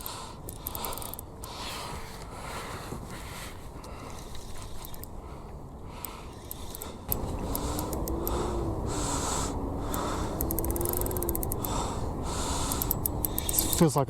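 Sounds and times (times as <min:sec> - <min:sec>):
fishing reel ticking: 0:00.0 - 0:01.6, 0:04.4 - 0:05.2, 0:06.0 - 0:08.4, 0:09.8 - 0:13.9
wind rumble on microphone: 0:00.9 - 0:13.8
faint wavering whine: 0:06.4 - 0:13.8.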